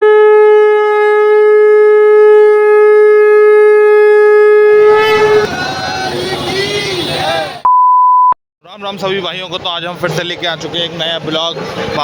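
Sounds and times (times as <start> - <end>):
conch shell blown: 0.0 - 5.7
street noise: 0.6 - 7.8, 8.6 - 12.0.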